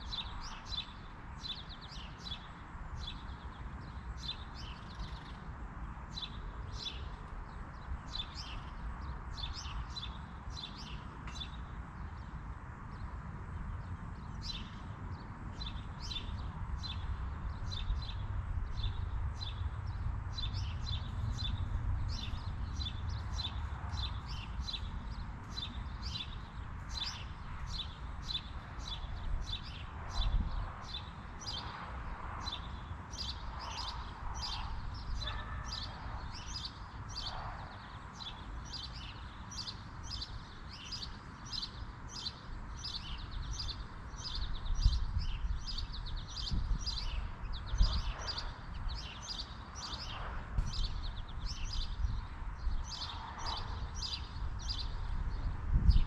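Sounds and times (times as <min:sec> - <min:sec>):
bird chirping: 0:12.9 - 0:31.8, 0:32.4 - 0:56.0.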